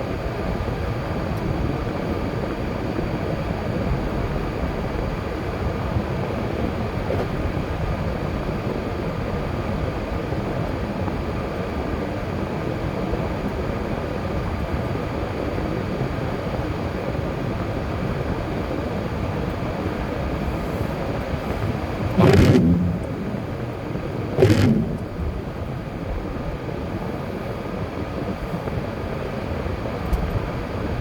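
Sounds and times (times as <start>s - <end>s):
road and tyre noise: 20.2s - 31.0s
low engine rumble: 20.3s - 27.6s.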